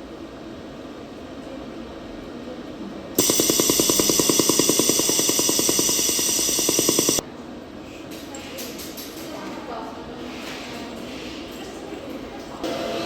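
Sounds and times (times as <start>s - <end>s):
laser welder pulsing: 3.2s - 7.2s.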